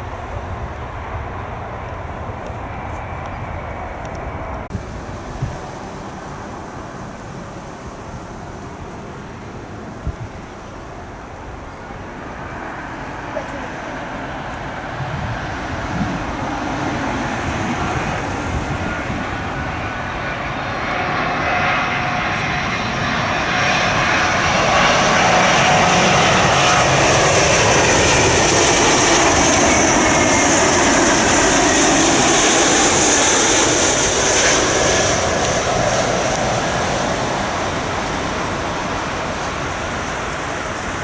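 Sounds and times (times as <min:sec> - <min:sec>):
jet airliner engines: 0:00.0 - 0:41.0.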